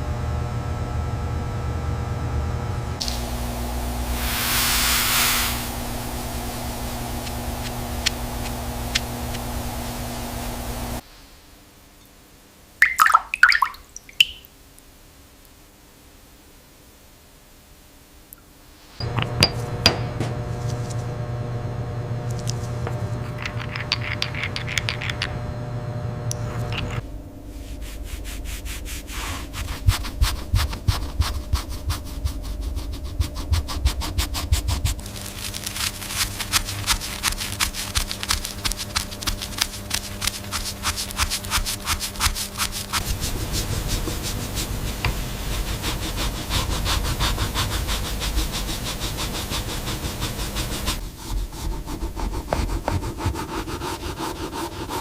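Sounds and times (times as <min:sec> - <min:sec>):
scrubbing silverware: 0:22.4 - 0:25.4, 0:34.4 - 0:48.0.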